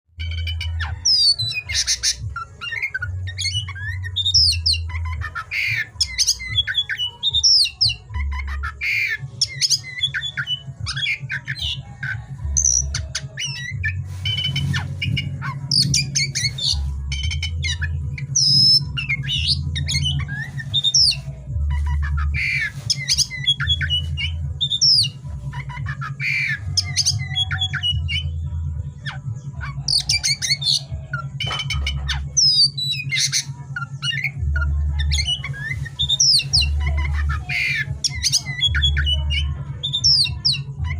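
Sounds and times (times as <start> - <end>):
bird singing whistles and chatter: 0.2 - 40.9.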